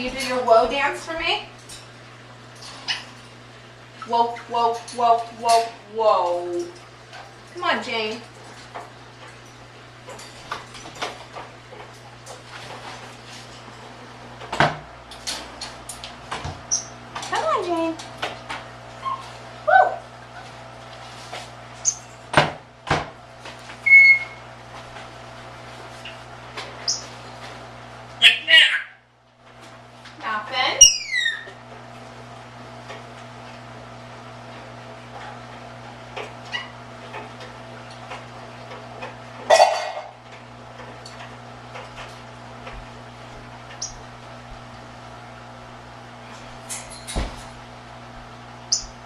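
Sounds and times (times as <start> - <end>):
dishes clattering: 39.5 - 40.1
dishes clinking: 39.5 - 40.1.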